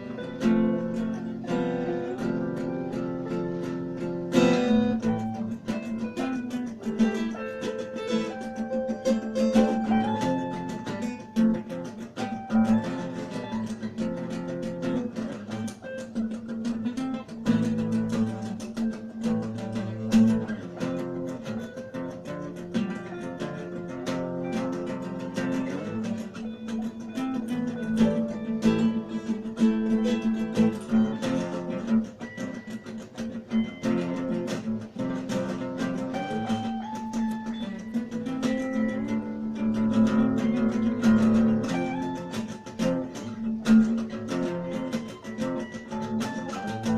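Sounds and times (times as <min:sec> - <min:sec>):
acoustic guitar plucked and strummed: 0:00.0 - 0:46.9.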